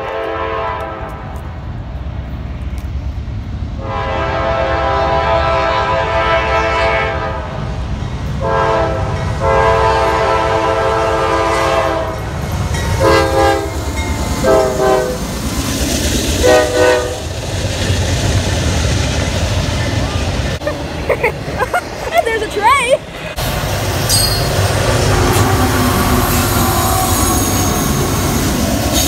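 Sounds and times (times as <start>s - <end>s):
locomotive horn blasts: 0.0s - 1.4s, 3.8s - 7.6s, 8.4s - 12.2s, 13.0s - 13.8s, 14.4s - 15.2s, 16.4s - 17.2s
train rolling rumble: 0.0s - 29.0s.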